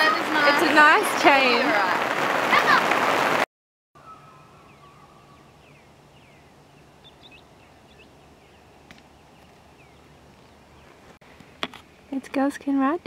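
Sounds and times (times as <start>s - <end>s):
birds whistled chirps: 4.0s - 11.0s.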